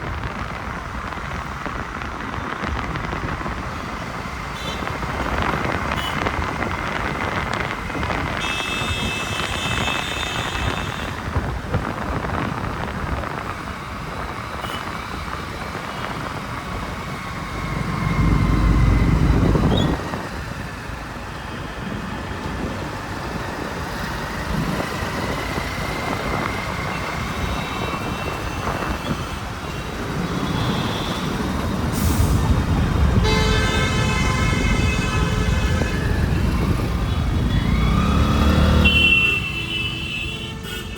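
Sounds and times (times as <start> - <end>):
road noise from motorbike: 0.0 - 40.9
vehicle horns honking: 4.5 - 5.0, 5.8 - 6.4, 8.3 - 11.2, 14.6 - 14.9, 33.0 - 40.9
heavy vehicle rumbling past: 16.8 - 20.7.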